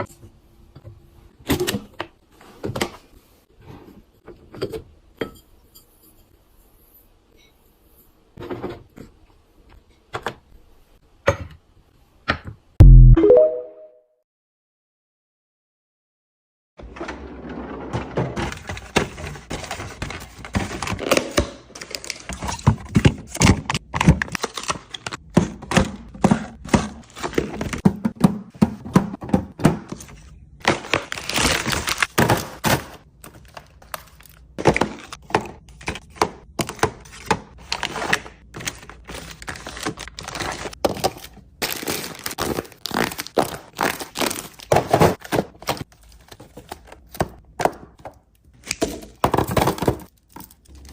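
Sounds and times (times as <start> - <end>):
packaging rustling: 30.6 - 35.2, 36.6 - 47.2.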